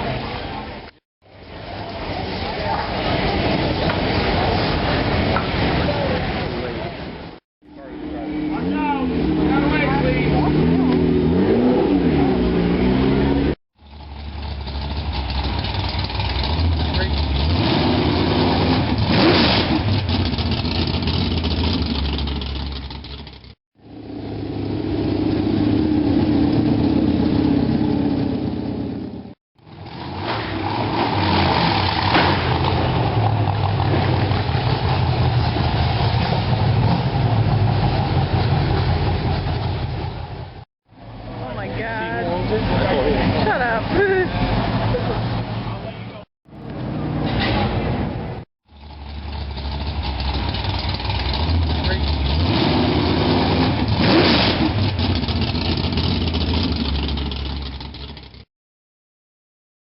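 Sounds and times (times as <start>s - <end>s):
car engine idling and revving: 0.0s - 58.5s
car engine idling: 13.8s - 17.5s, 47.8s - 52.4s, 54.8s - 58.4s.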